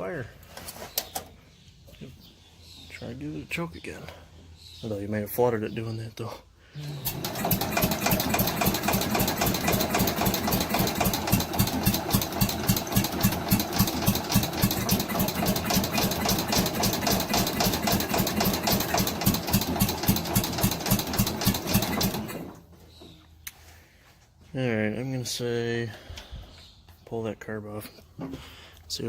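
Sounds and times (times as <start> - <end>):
engine cranking on starter: 7.0 - 22.7.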